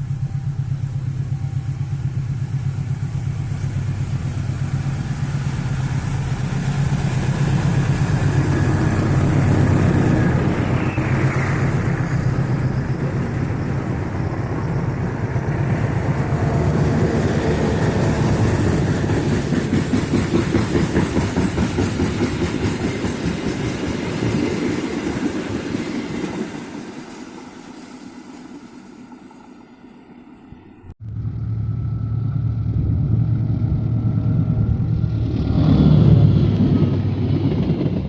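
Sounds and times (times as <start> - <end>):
locomotive engine hum: 0.0 - 38.0
train wheels clattering over rail joints: 3.1 - 27.6.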